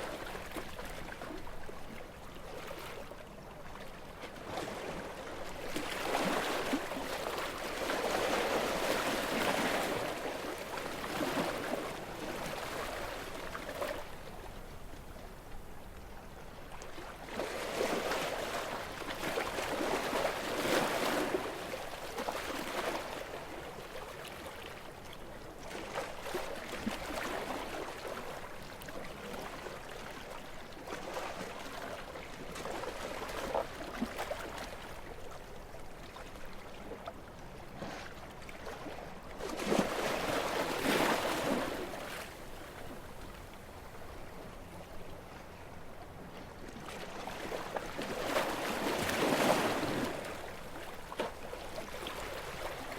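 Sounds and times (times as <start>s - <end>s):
gentle sea waves washing: 4.1s - 24.8s, 37.7s - 52.9s.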